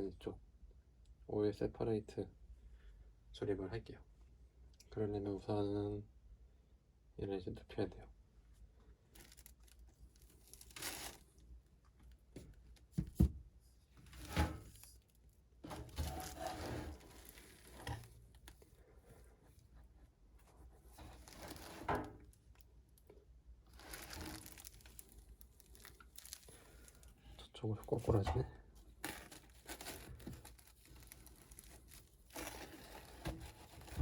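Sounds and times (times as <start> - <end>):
crinkling and rustling: 9.1 - 34.0.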